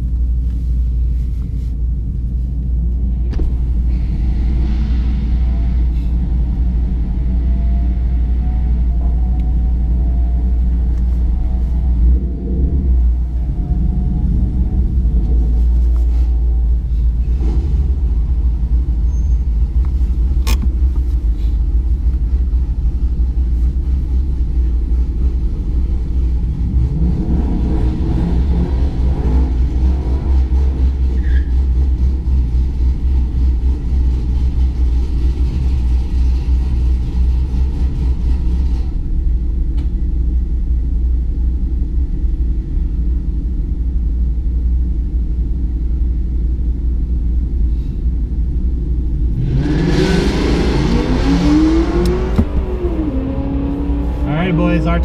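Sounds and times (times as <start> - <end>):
car engine idling: 0.0 - 49.4
engine revving: 49.3 - 55.0.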